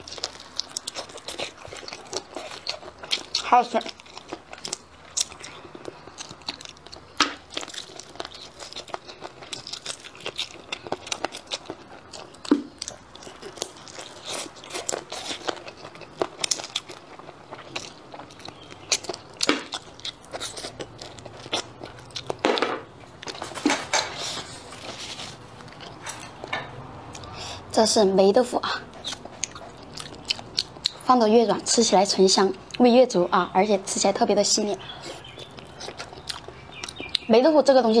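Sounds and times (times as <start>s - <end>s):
wet chewing clicks: 0.0s - 26.5s, 28.8s - 33.2s, 34.4s - 37.5s
biting snaps: 35.1s - 37.3s.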